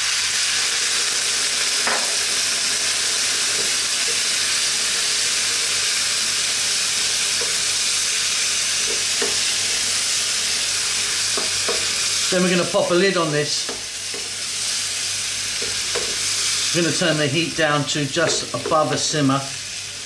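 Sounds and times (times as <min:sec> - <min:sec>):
food sizzling in a frying pan: 0:00.0 - 0:20.0
wooden spoon knocking against pan: 0:11.4 - 0:11.9, 0:15.6 - 0:16.2.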